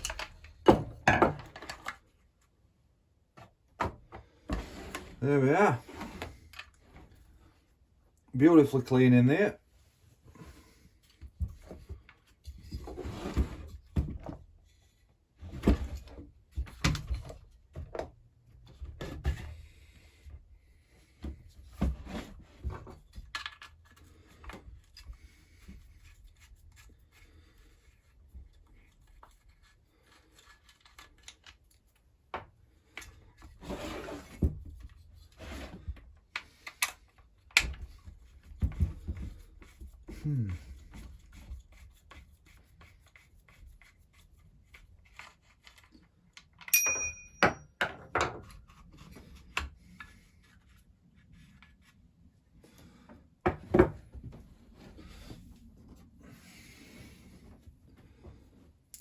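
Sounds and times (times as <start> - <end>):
tools and parts knocking: 0.0 - 1.9, 46.7 - 48.5.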